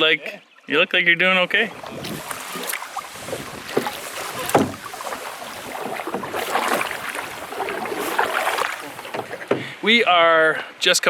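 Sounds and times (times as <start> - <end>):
wind: 0.0 - 11.0
paddle splashing water: 1.3 - 10.2.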